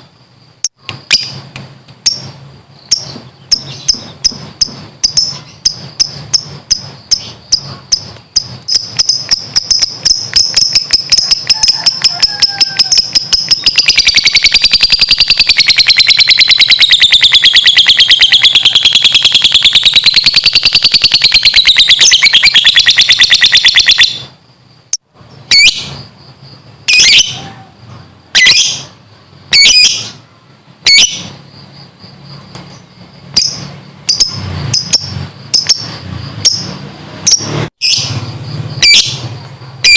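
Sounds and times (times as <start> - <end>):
lovebird chattering rattle: 2.0 - 24.2, 32.7 - 38.1
shrill bird calls: 2.1 - 24.4, 25.4 - 26.1, 26.9 - 30.2, 30.8 - 31.4, 38.8 - 39.9.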